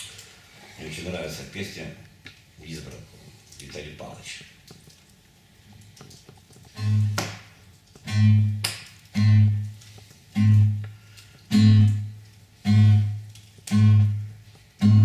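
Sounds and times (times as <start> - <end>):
acoustic guitar strumming: 6.7 - 7.4, 8.0 - 15.0.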